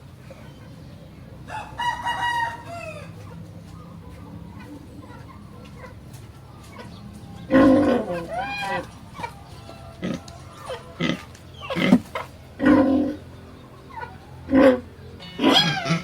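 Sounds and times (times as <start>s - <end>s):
steady low hum: 0.0s - 16.0s
rooster crowing: 1.4s - 4.7s, 7.3s - 12.0s.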